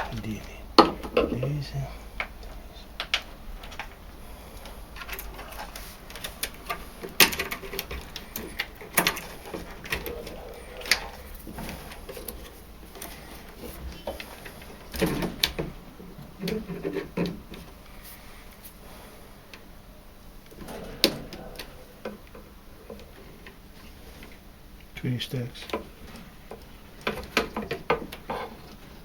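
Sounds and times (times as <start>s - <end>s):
plastic parts clicking and knocking: 0.0s - 1.6s, 2.2s - 17.8s, 25.4s - 29.0s.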